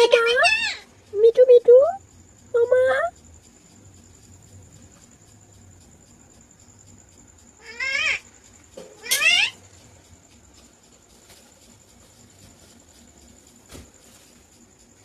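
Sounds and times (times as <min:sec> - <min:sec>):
parakeet mimicking cat meow: 0:00.0 - 0:00.9, 0:07.6 - 0:08.2, 0:09.0 - 0:09.6.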